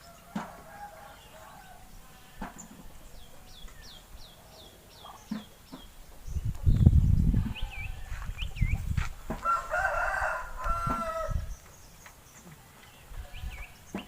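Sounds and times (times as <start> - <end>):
small birds chirping: 0.0 - 14.0
rooster crowing: 9.4 - 11.5.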